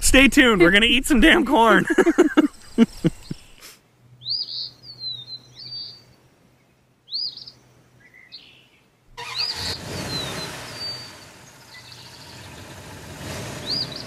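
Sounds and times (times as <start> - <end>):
small birds chirping: 1.6 - 14.0
rushing noise: 9.2 - 14.0.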